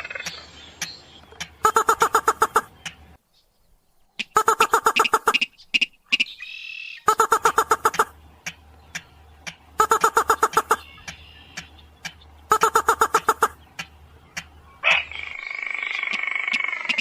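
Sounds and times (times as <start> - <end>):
rail bird calling harsh notes: 1.6 - 2.8, 4.2 - 8.2, 9.7 - 13.8.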